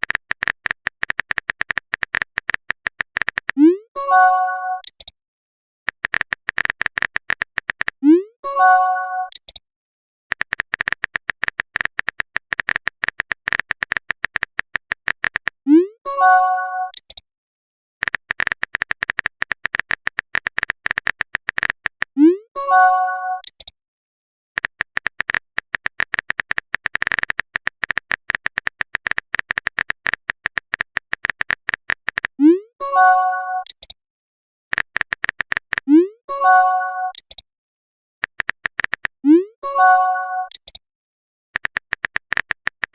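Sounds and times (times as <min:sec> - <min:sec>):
rapid typing clicks: 0:00.0 - 0:03.6, 0:05.9 - 0:08.0, 0:10.3 - 0:15.6, 0:18.0 - 0:22.2, 0:24.6 - 0:32.4, 0:34.7 - 0:35.9, 0:38.2 - 0:39.2, 0:41.6 - 0:42.9
message chime: 0:04.0 - 0:04.8, 0:32.8 - 0:33.6, 0:36.3 - 0:37.2, 0:39.6 - 0:40.5
brief synthesized chime: 0:39.6 - 0:40.5.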